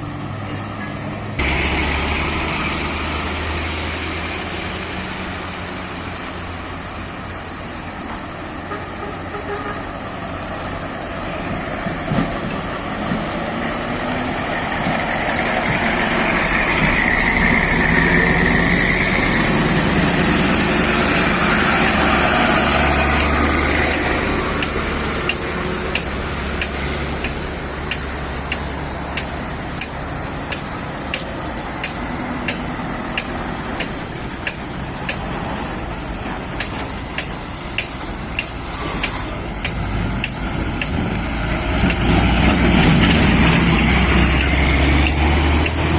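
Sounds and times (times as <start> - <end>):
heavy vehicle engine running: 0.0 - 45.9
sharp metallic clicks: 23.9 - 35.4, 36.6 - 41.1, 41.8 - 45.9.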